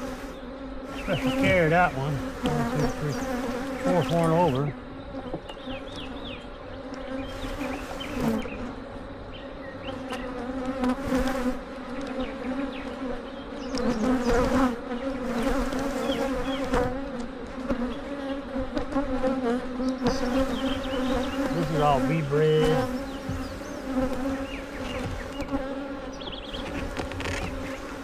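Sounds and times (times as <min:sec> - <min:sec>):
bees buzzing: 0:00.0 - 0:28.0
short knocks: 0:22.8 - 0:25.6.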